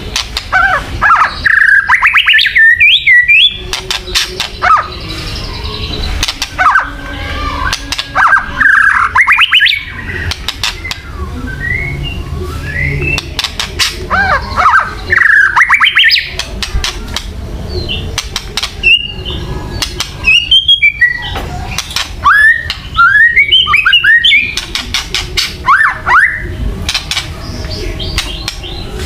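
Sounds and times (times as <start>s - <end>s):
songbird clicking and whistling call: 1.1s - 4.9s, 7.7s - 12.0s, 14.6s - 17.3s, 19.8s - 27.3s.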